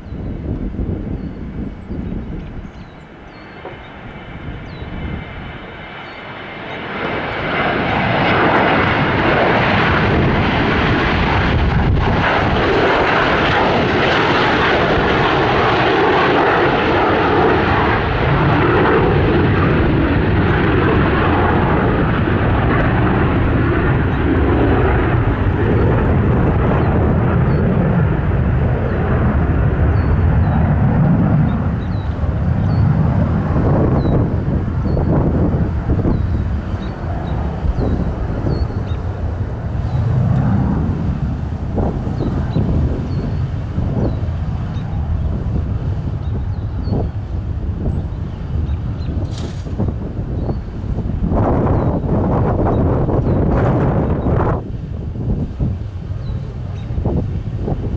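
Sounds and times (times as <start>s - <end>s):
jet engines whining: 0.0s - 57.9s.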